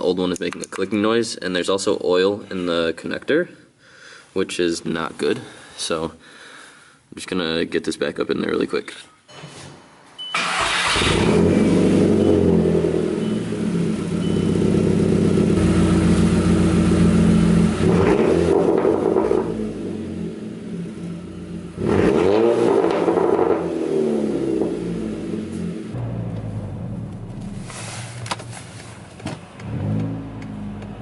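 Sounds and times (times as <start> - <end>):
car engine starting and revving: 10.4 - 31.0.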